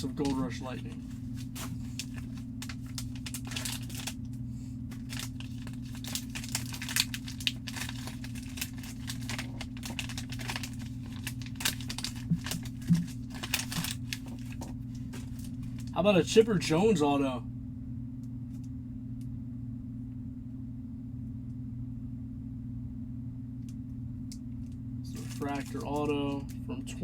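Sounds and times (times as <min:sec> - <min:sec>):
plastic wrapping crinkling and tearing: 0:00.0 - 0:04.2, 0:04.9 - 0:16.0, 0:25.1 - 0:26.6
steady low hum: 0:00.0 - 0:27.0.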